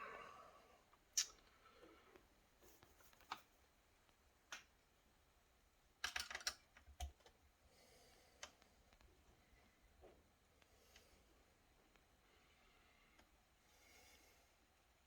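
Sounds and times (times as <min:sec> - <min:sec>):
plastic laptop parts clicking: 0:06.0 - 0:07.4.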